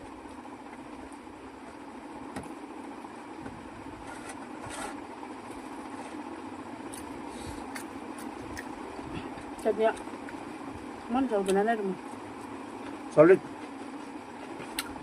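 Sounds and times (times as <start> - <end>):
background hum: 0.0 - 15.0
chewing crunches and clicks: 6.9 - 8.8.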